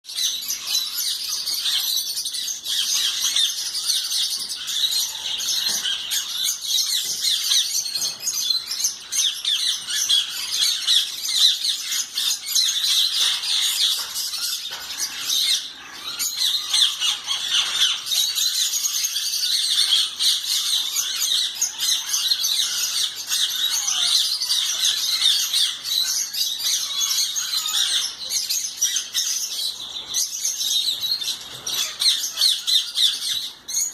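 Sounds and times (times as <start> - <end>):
parrots chattering and squawking: 0.1 - 33.9.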